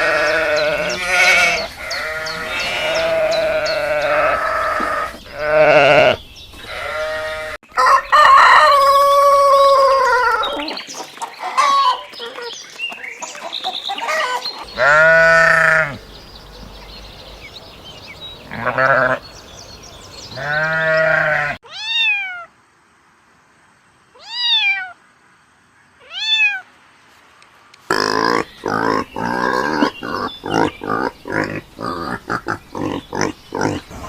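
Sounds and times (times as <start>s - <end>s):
low animal bleats: 0.0s - 7.6s, 14.7s - 16.1s, 18.5s - 19.3s, 20.3s - 21.6s
cat meowing: 20.4s - 22.5s, 24.2s - 25.0s.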